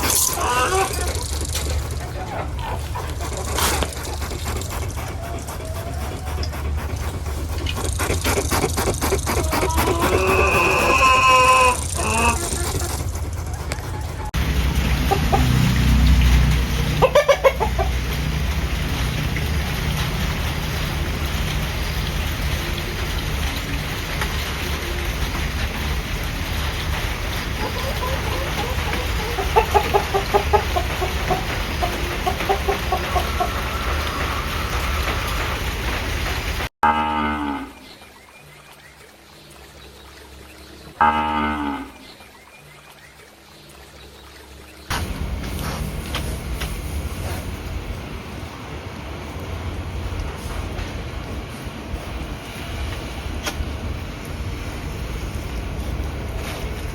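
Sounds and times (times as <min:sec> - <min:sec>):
farm animal calling: 0:00.0 - 0:14.4
chicken clucking: 0:00.0 - 0:15.6, 0:17.0 - 0:18.0, 0:27.6 - 0:35.5.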